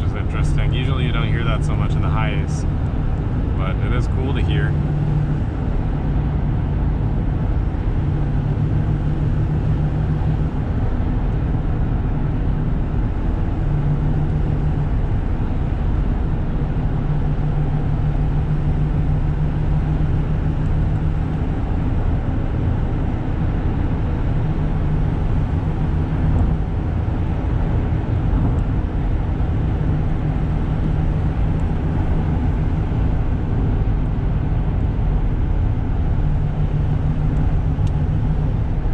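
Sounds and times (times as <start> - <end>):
turbo and intake noise: 0.0 - 5.9
diesel engine hum: 0.0 - 38.9
road noise: 0.0 - 38.9.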